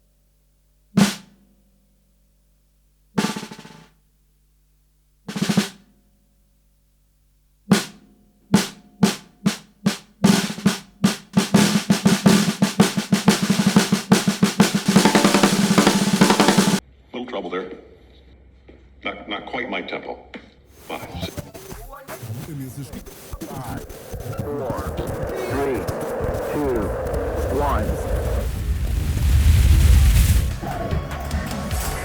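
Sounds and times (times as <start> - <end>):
snare drum hits and roll: 1.0 - 1.4, 3.2 - 4.0, 5.3 - 5.8, 7.7 - 8.0, 8.6 - 16.8.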